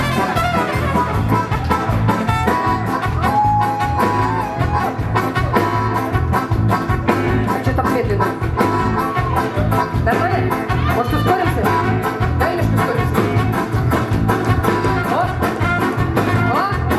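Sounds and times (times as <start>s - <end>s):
rock band playing: 0.0s - 16.9s.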